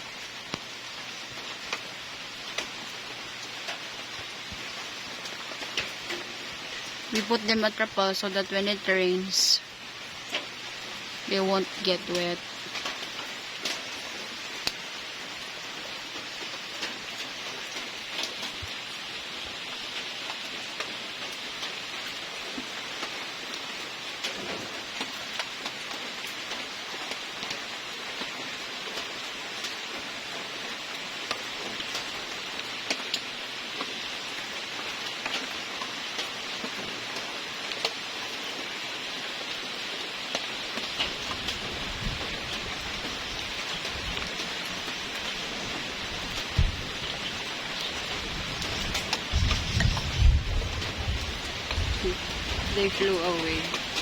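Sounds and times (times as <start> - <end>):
rain hissing: 0.0 - 54.0
raindrops ticking: 0.1 - 54.0.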